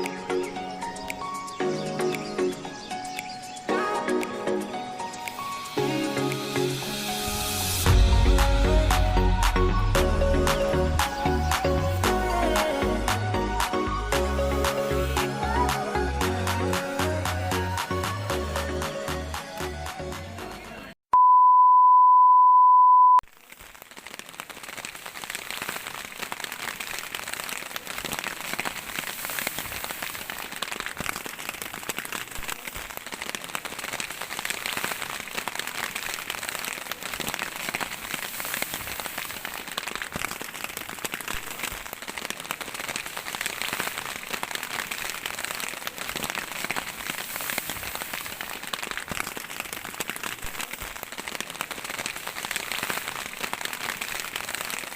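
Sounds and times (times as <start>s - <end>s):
electronic beep: 21.2s - 23.2s
rain falling: 23.3s - 54.9s.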